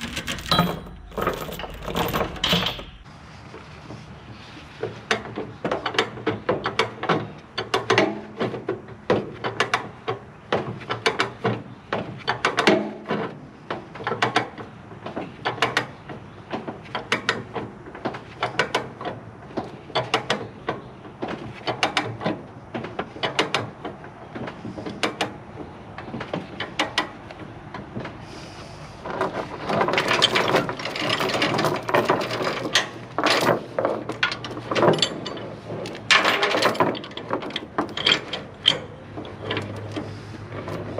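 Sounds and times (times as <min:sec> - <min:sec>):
metallic clatter: 0:00.0 - 0:03.1, 0:29.0 - 0:40.9.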